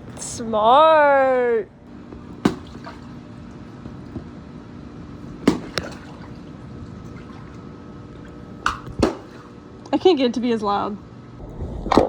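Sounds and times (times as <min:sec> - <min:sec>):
faint steady hum: 0:00.0 - 0:12.0
pool water lapping: 0:02.0 - 0:12.0
smacks on water: 0:05.4 - 0:06.3, 0:08.6 - 0:09.5.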